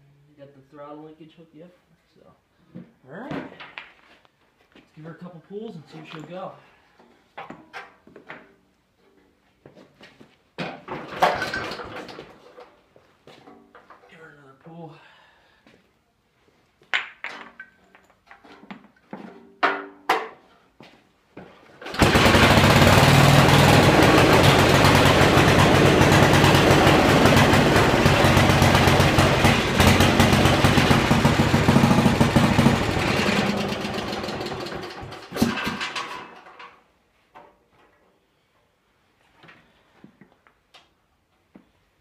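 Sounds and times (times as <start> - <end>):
rope pull starter: 21.8 - 36.4
small engine running loudly: 21.9 - 35.2.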